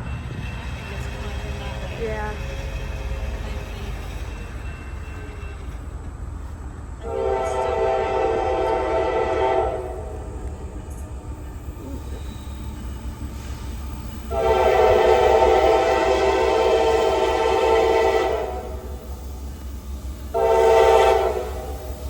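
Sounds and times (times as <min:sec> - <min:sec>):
locomotive air horn blasts: 0:07.0 - 0:10.3, 0:14.2 - 0:19.0, 0:20.3 - 0:21.9.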